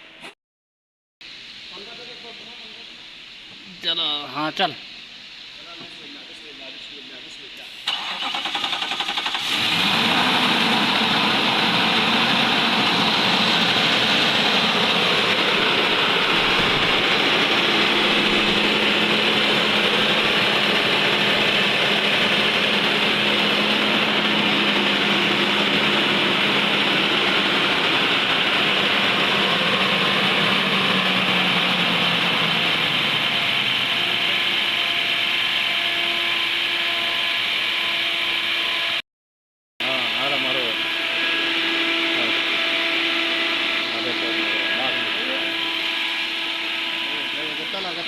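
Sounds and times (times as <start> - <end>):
car engine idling: 6.0 - 35.6.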